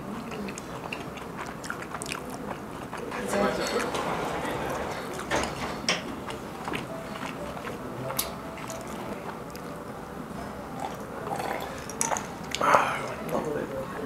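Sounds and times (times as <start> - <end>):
person chewing food: 0.0 - 3.2, 5.0 - 9.8, 10.8 - 13.3.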